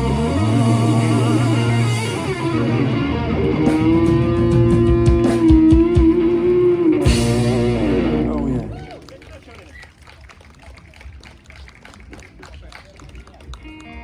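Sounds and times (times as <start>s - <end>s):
electric guitar bending note: 0.0s - 8.8s
drums: 0.0s - 9.0s
bass guitar: 0.0s - 9.1s.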